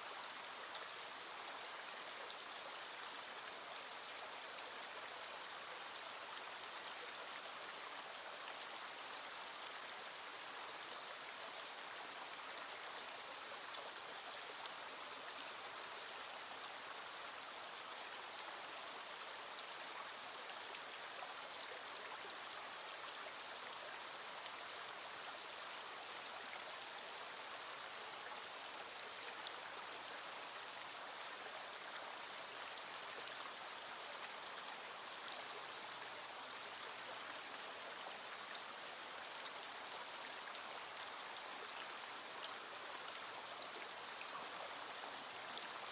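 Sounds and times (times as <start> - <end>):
stream flowing over stones: 0.0 - 45.9.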